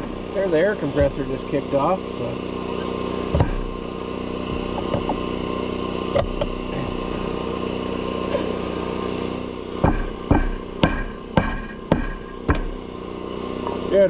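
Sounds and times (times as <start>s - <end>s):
engine running steadily: 0.0s - 14.0s
sharp metal knocks: 1.0s - 1.5s, 3.3s - 3.8s, 4.5s - 5.2s, 9.8s - 12.9s.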